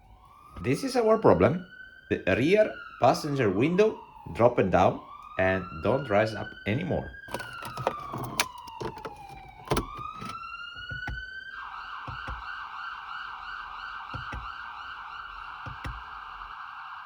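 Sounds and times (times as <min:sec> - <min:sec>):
emergency vehicle siren: 0:00.0 - 0:17.0.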